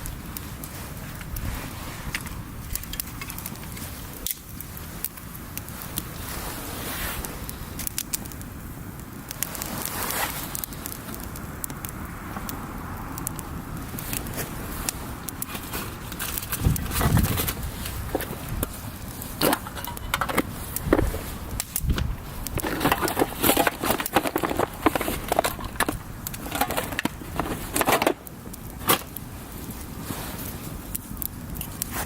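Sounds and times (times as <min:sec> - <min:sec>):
campfire crackling: 0:00.0 - 0:32.0
dull low knocks: 0:16.6 - 0:18.4.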